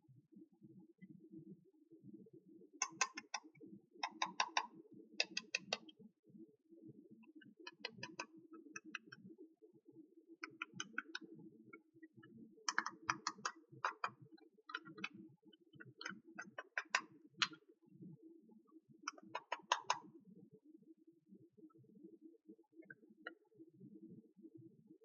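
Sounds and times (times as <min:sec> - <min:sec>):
plastic toy pieces clicking: 0:02.8 - 0:03.4, 0:04.0 - 0:05.8, 0:12.7 - 0:14.1, 0:16.4 - 0:17.6, 0:19.1 - 0:20.0.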